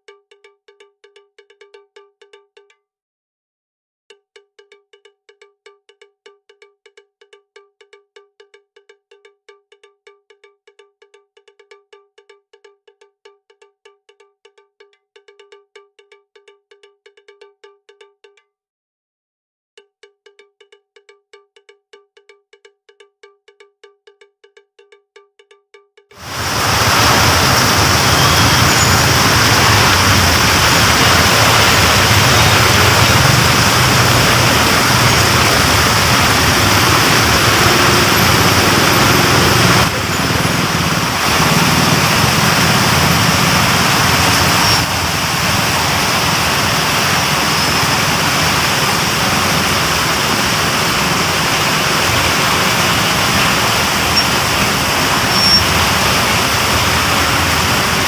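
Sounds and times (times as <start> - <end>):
heavy rain pouring: 26.2 - 58.0.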